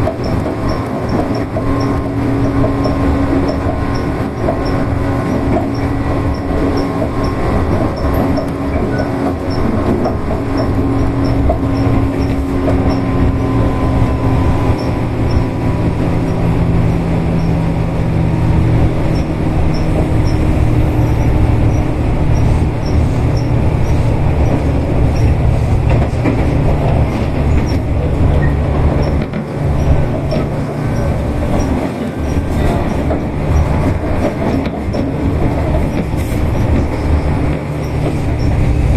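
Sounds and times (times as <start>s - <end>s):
rail-joint clicks: 0.0s - 38.9s
train wheels rumbling on rail: 0.0s - 38.9s
wheel squeal: 3.8s - 15.5s, 19.1s - 25.4s.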